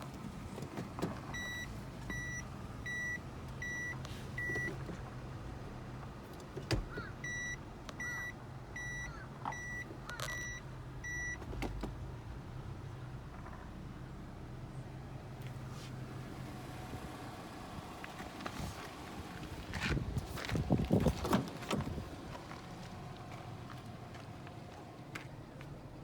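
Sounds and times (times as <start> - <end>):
car engine idling: 0.0 - 26.0
electronic warning beeps: 1.4 - 4.7, 7.2 - 11.4.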